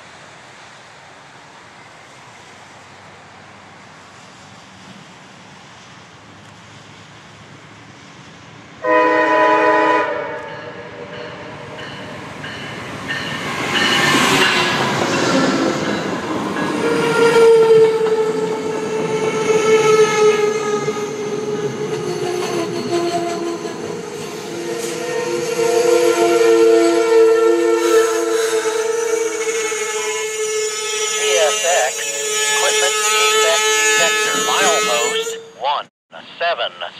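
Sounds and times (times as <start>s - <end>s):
train air horn blast: 8.8s - 11.7s, 22.8s - 35.6s
train wheels on rails: 10.2s - 27.0s, 27.8s - 35.3s.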